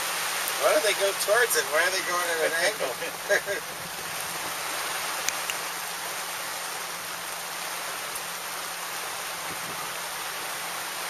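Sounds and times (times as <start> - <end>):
rain hissing: 0.0 - 11.0.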